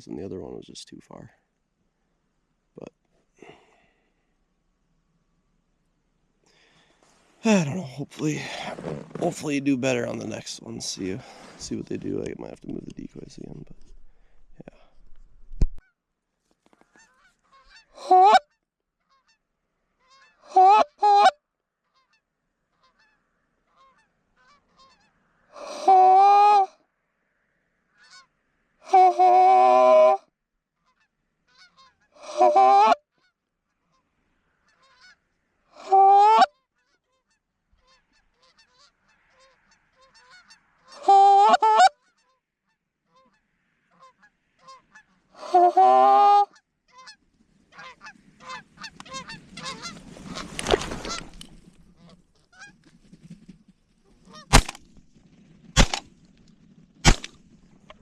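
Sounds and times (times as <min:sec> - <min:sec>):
rustling: 0:08.2 - 0:15.8, 0:16.4 - 0:17.8, 0:46.9 - 0:58.0
geese honking: 0:16.9 - 0:26.7, 0:27.9 - 0:30.2, 0:30.8 - 0:52.8, 0:54.2 - 0:54.8
shotgun blasts: 0:54.5 - 0:54.9, 0:55.8 - 0:56.2, 0:57.0 - 0:57.5.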